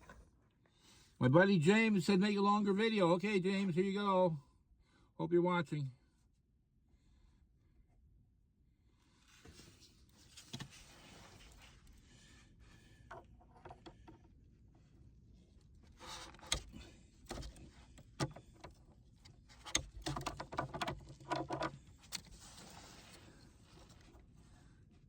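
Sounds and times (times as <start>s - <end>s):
clicks and knocks of plumbing parts: 13.1s - 14.3s, 16.1s - 22.4s.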